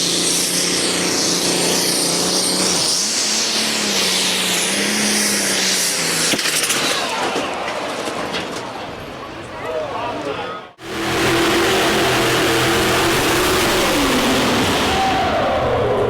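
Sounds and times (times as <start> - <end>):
tractor engine at high revs: 0.0 - 8.3, 10.8 - 16.0.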